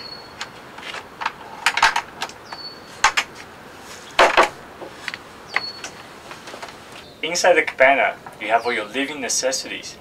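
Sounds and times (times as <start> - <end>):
door and footstep knocks: 4.2 - 4.6.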